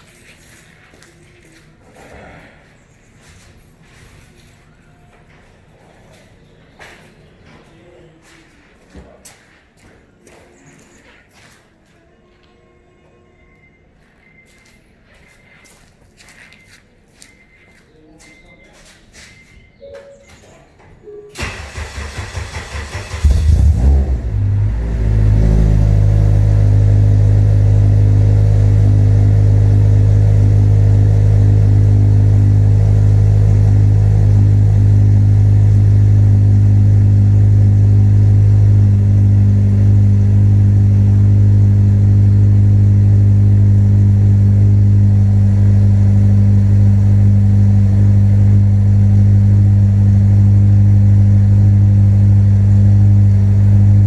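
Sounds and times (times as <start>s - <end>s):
car engine idling: 21.4s - 54.0s.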